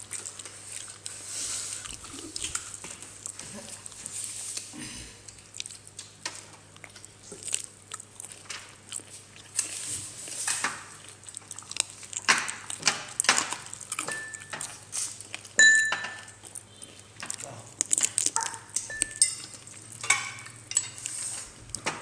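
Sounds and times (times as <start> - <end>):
dishes and utensils clattering: 12.3 - 14.9, 15.6 - 16.4, 18.3 - 22.0.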